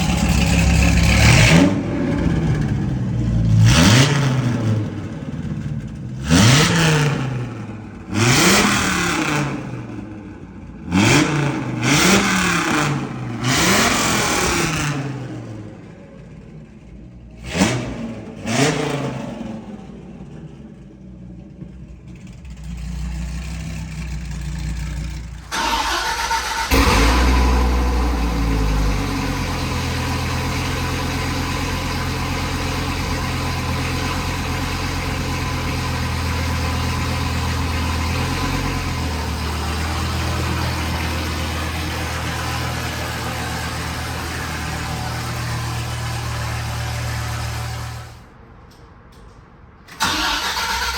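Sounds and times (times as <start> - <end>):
car engine starting and idling: 0.0 - 50.9
short exhaust burst: 25.5 - 29.6.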